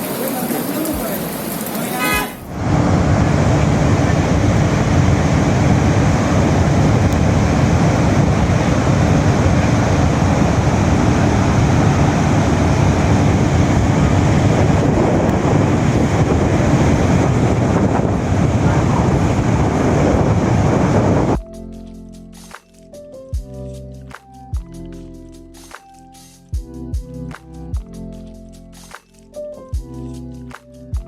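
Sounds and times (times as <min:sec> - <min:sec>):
steady rushing noise: 0:00.0 - 0:21.4.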